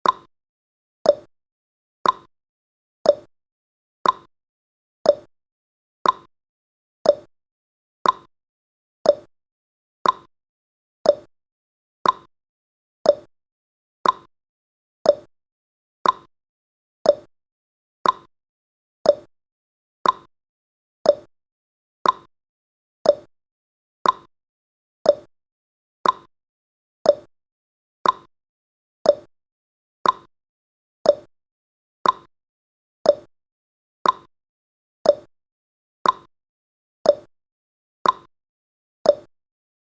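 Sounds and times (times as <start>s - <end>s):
clock ticking: 2.0s - 2.3s, 4.0s - 4.3s, 6.0s - 6.3s, 8.0s - 8.3s, 10.0s - 10.3s, 12.0s - 12.3s, 14.0s - 14.3s, 16.0s - 16.3s, 18.0s - 18.3s, 20.0s - 20.3s, 22.0s - 22.3s, 23.1s - 23.3s, 24.0s - 24.3s, 26.0s - 26.3s, 28.0s - 28.3s, 29.1s - 29.3s, 30.0s - 30.3s, 31.1s - 31.3s, 32.0s - 32.3s, 33.1s - 33.3s, 34.0s - 34.3s, 35.1s - 35.3s, 36.0s - 36.3s, 38.0s - 38.3s, 39.1s - 39.3s.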